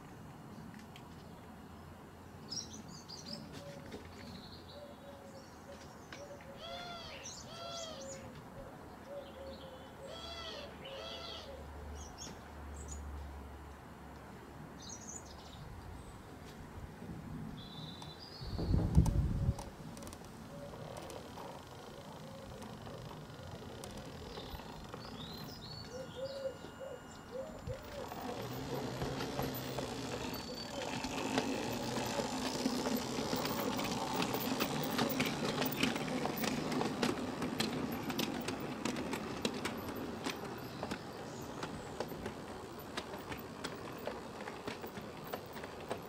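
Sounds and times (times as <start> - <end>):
train rumbling and clattering past: 20.5 - 46.0.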